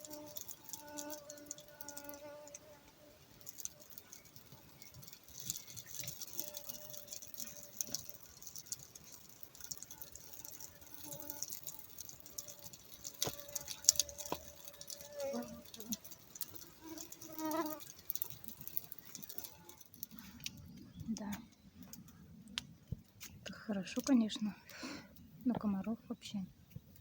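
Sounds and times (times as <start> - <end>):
campfire crackling and popping: 0.0 - 25.5.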